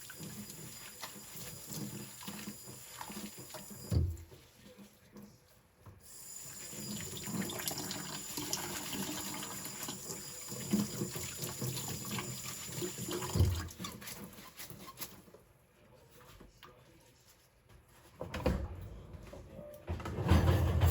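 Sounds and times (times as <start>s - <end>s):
water running from tap into sink: 0.0s - 4.4s, 6.0s - 14.1s.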